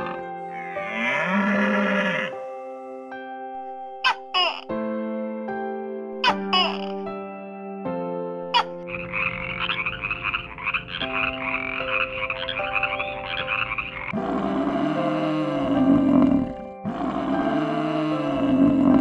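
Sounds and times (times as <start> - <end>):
water buffalo lowing: 0.0 - 2.6, 10.1 - 19.0
soft background music: 0.0 - 19.0
toad trilling: 8.9 - 14.2.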